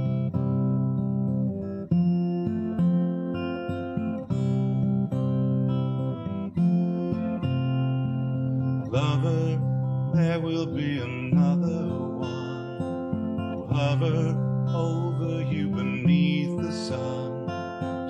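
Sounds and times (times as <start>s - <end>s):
acoustic guitar strumming: 0.0s - 18.0s
person singing: 8.8s - 18.0s.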